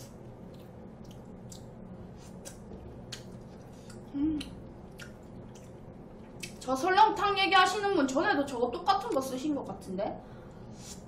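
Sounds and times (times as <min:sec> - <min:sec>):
wet chewing sounds: 0:00.0 - 0:06.7.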